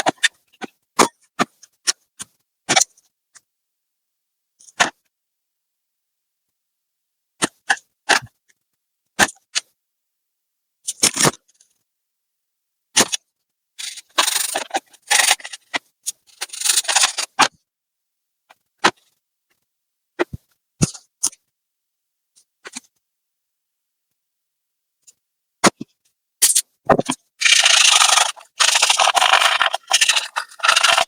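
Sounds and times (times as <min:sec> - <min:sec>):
scraping or rubbing: 0:13.8 - 0:15.7, 0:16.3 - 0:17.4, 0:27.4 - 0:31.0.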